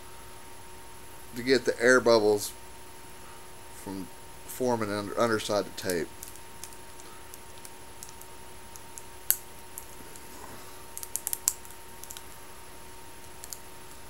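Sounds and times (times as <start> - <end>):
tape clicking and crackling: 5.7 - 12.4, 13.1 - 14.0.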